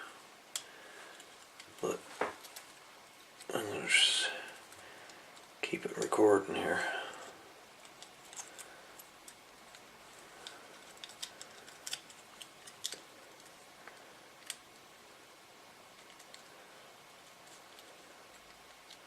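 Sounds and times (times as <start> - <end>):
plastic and metal parts clicking: 7.8 - 13.6.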